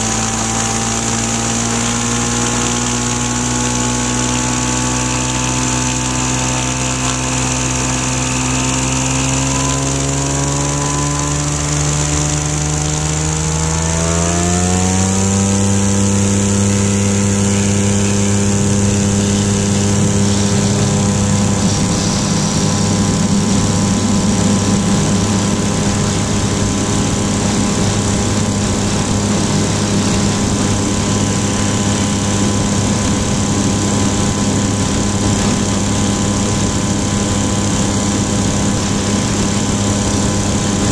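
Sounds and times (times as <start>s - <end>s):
light aircraft engine and propeller: 0.0s - 40.9s.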